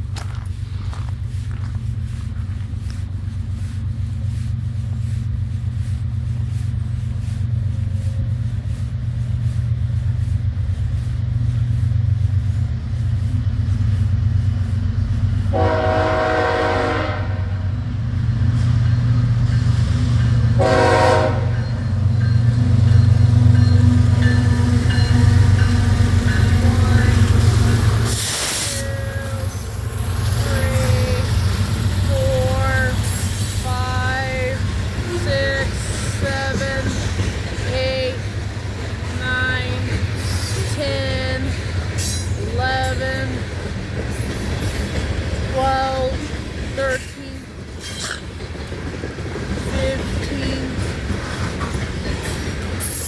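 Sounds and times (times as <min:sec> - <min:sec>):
diesel locomotive rumble: 0:00.0 - 0:53.0
locomotive air horn blasts: 0:15.5 - 0:17.8, 0:20.6 - 0:21.7.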